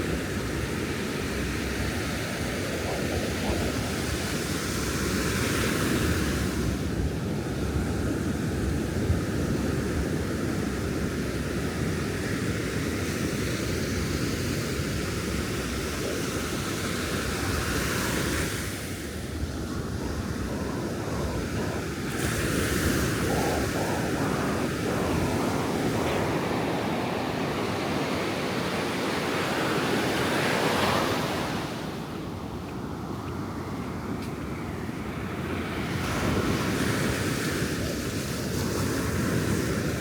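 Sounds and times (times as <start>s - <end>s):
wind on microphone: 0.0s - 40.0s
waves rumbling: 0.5s - 6.8s, 14.6s - 33.1s.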